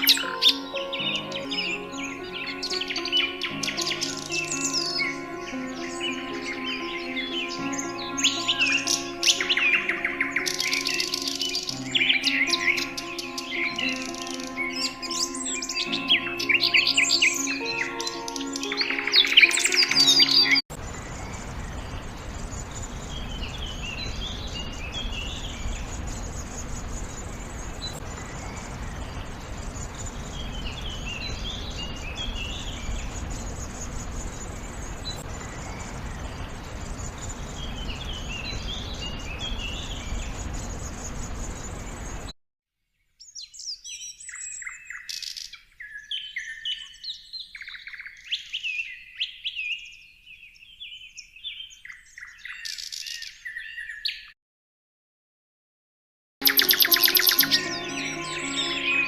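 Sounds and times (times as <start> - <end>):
songbird high notes: 0.0 - 20.6, 56.4 - 59.0
bird chirps and trills: 0.0 - 42.3, 56.4 - 59.0
background hiss and rumble: 20.8 - 42.3.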